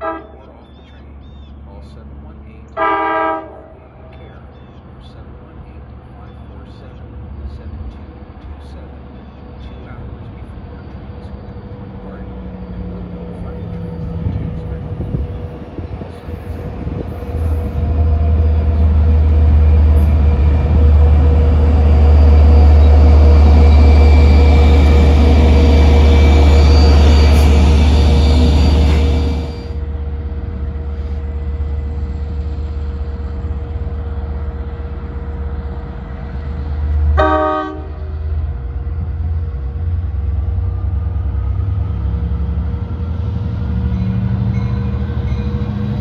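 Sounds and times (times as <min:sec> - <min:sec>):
locomotive horn blast: 0:00.0 - 0:00.6, 0:02.8 - 0:04.0, 0:16.3 - 0:29.8, 0:37.1 - 0:38.4
locomotive engine drone: 0:00.0 - 0:46.0.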